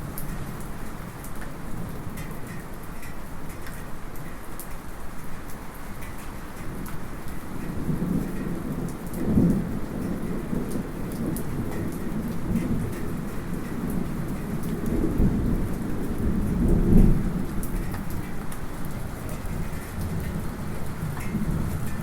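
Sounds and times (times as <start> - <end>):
light rain falling: 0.0 - 22.0
water drips ticking: 0.2 - 22.0
distant thunder rumbling: 7.7 - 22.0.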